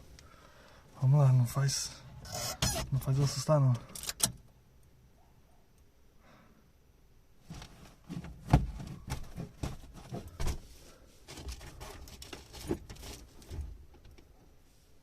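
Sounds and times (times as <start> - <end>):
objects handled in car cabin: 1.5 - 4.6, 7.4 - 14.6.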